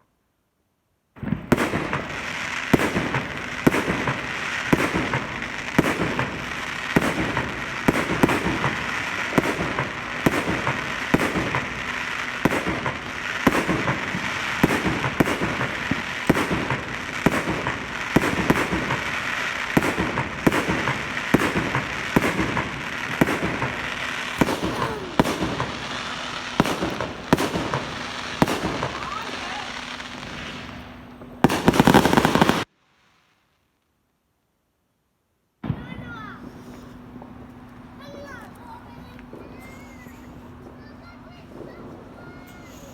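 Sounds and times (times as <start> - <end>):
fireworks crackling and banging: 1.1 - 33.6, 35.6 - 42.9.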